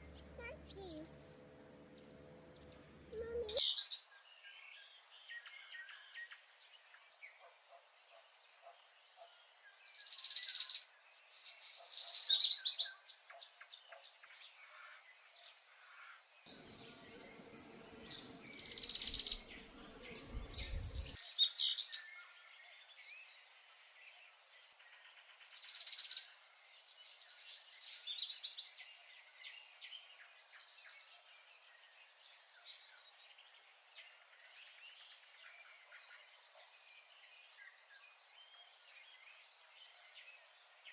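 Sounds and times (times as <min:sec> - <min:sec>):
songbird singing trills: 0:00.0 - 0:01.2, 0:01.9 - 0:06.4, 0:16.5 - 0:23.6
low rumble: 0:19.6 - 0:21.2.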